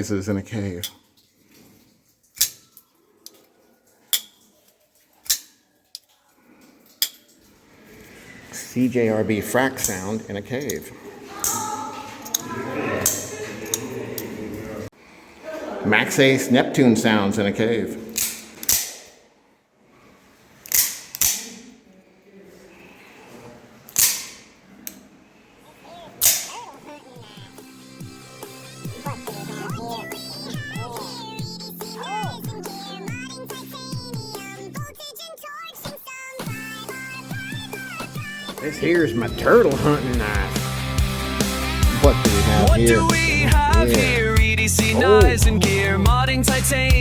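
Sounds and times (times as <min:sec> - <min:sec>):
folding knife clicking open and shut: 0:18.2 - 0:19.1, 0:20.6 - 0:21.6, 0:23.9 - 0:24.4.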